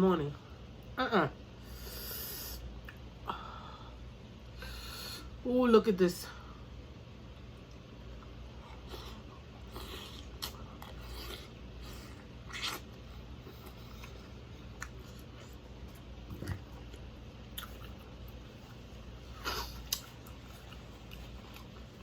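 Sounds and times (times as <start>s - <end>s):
person chewing: 7.7s - 22.0s.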